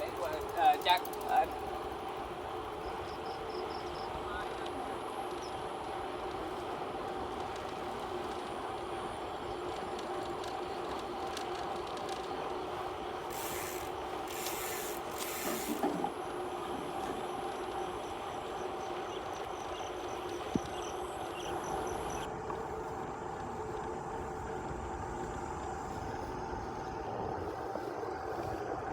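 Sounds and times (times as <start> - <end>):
bicycle rolling hum: 0.0 - 28.9
short hisses: 13.3 - 15.9.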